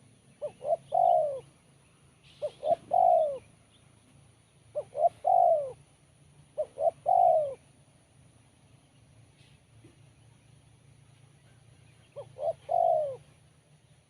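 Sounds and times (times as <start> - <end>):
dove cooing: 0.0 - 1.6, 2.3 - 3.6, 4.7 - 5.9, 6.5 - 7.7, 12.1 - 13.4.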